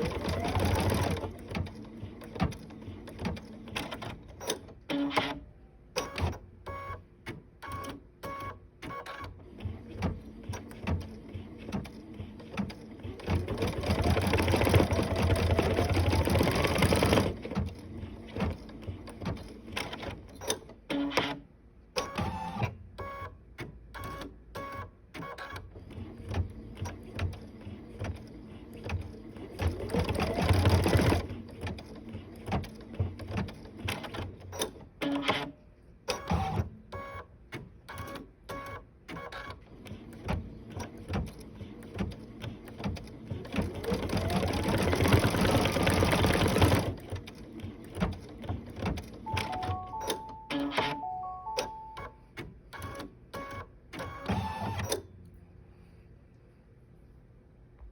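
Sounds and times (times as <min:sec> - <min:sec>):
sewing machine clicks and knocks: 0:00.0 - 0:05.4, 0:06.0 - 0:21.4, 0:22.0 - 0:49.7
sewing machine stitching: 0:00.0 - 0:05.4, 0:07.6 - 0:21.4, 0:24.0 - 0:37.2, 0:37.9 - 0:49.6.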